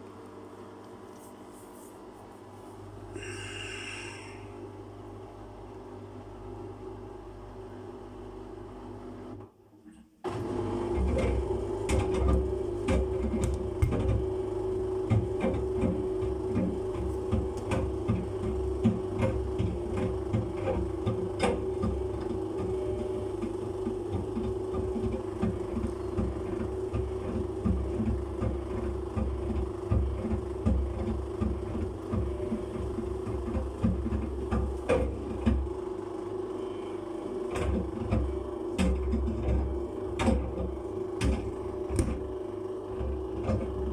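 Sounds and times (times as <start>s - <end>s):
washing machine motor whining: 10.3s - 43.9s.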